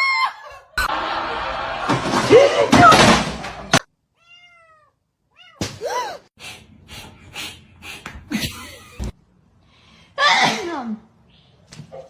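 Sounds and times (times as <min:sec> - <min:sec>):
cat chirping and calling: 0:04.2 - 0:05.6
cat breathy puffs: 0:06.4 - 0:08.6.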